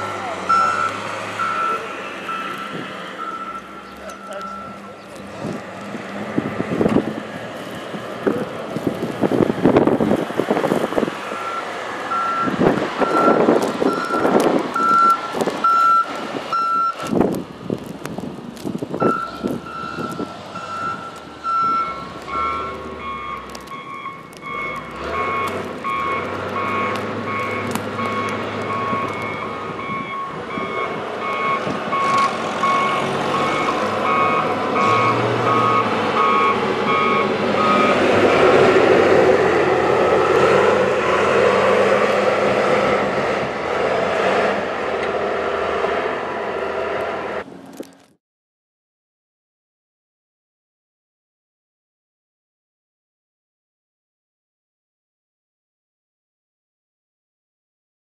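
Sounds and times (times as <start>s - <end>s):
low-pitched backup alarm beeping: 0.5s - 4.8s, 19.0s - 38.0s
high-pitched backup alarm beeping: 19.0s - 38.0s.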